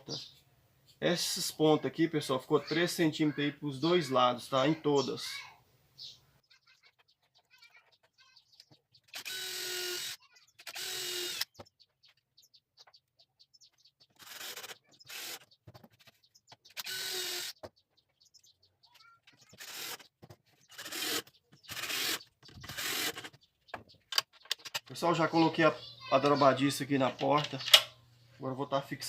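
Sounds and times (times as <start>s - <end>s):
power drill driving screws: 9.0s - 11.5s, 14.2s - 15.5s, 16.7s - 17.6s, 19.5s - 20.1s, 20.7s - 23.3s.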